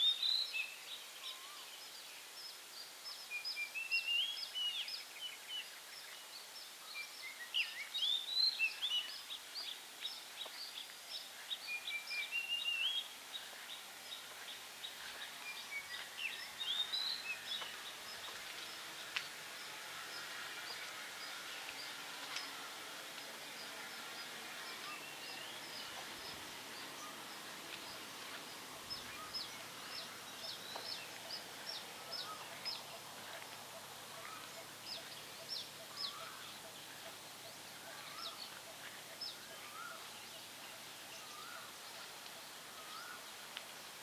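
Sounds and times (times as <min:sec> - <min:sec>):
steady background hiss: 0:00.0 - 0:44.0
lower repeated bird call: 0:24.6 - 0:43.3.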